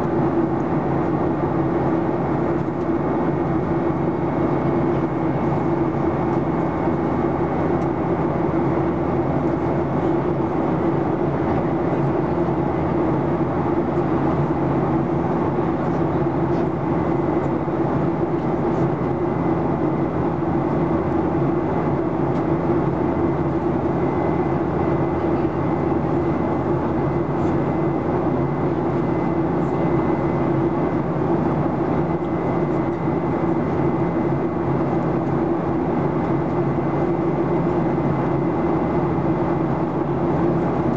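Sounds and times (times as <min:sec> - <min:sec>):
airplane cabin engine drone: 0:00.0 - 0:40.9.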